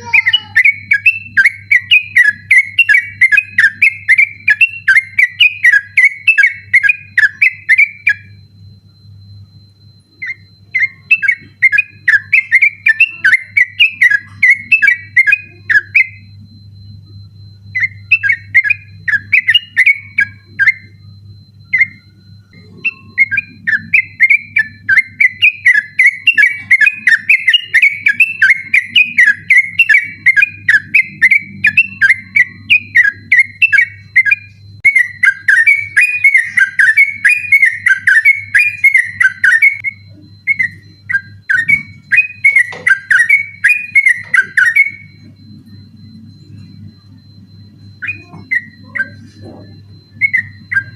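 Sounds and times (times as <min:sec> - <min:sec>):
bird singing bubbly whistled notes: 0:00.0 - 0:50.9.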